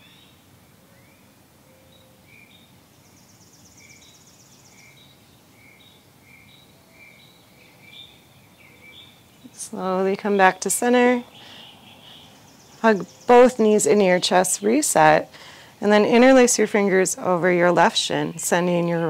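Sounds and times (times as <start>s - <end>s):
bird chirps: 0.0s - 15.2s
low steady hiss: 0.0s - 19.0s.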